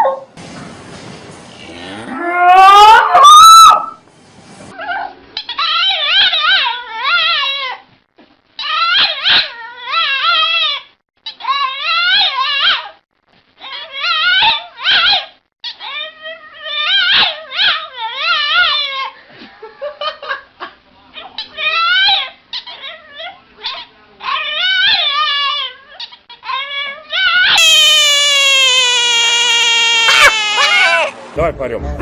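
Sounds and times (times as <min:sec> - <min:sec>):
sustained falling cry: 0:01.7 - 0:04.0, 0:27.5 - 0:31.2
dog high-pitched calls: 0:02.5 - 0:04.0, 0:08.6 - 0:13.0, 0:13.6 - 0:19.0, 0:21.3 - 0:31.1.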